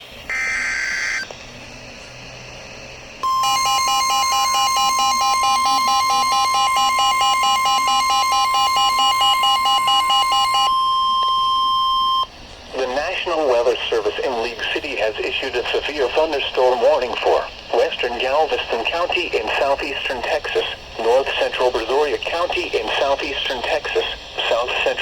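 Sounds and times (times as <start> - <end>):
steady warning alarm tone: 0.3 - 1.3, 3.2 - 12.3
pulsing beep: 3.2 - 12.3.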